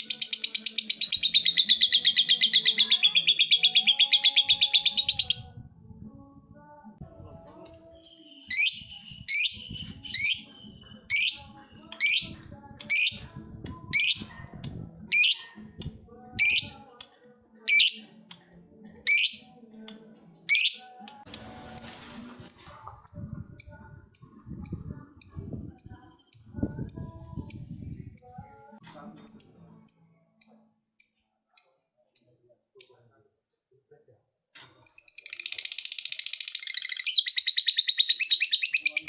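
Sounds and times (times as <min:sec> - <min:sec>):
lovebird chattering song: 0:00.0 - 0:05.5, 0:07.8 - 0:14.3, 0:15.1 - 0:15.6, 0:16.4 - 0:16.8, 0:17.7 - 0:18.1, 0:19.1 - 0:19.4, 0:20.4 - 0:21.0, 0:22.5 - 0:28.4, 0:34.9 - 0:39.0.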